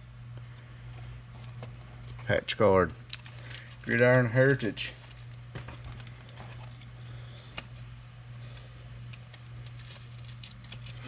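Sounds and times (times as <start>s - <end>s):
low electrical hum: 0.0s - 11.0s
trading cards being shuffled: 1.3s - 6.9s, 8.5s - 11.0s.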